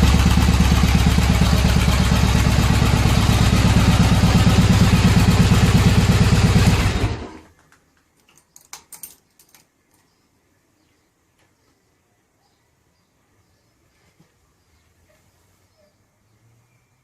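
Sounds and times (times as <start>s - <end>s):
motorcycle engine throbbing: 0.0s - 7.5s
light metallic clicks and jingles: 8.2s - 10.1s.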